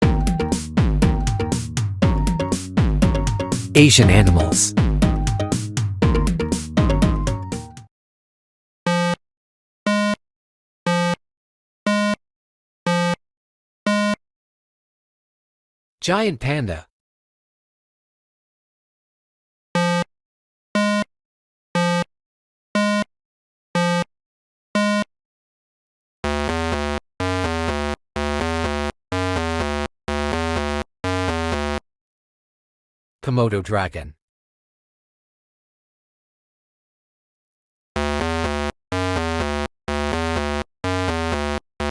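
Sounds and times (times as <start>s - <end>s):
synthesizer beeps: 2.2s - 5.4s
synthesizer note phrases: 3.4s - 4.8s.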